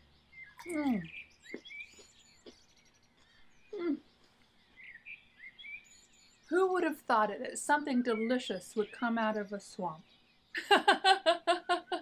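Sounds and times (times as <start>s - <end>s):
faint birdsong chirps: 0.0s - 12.0s
woman humming with enjoyment: 3.7s - 4.0s.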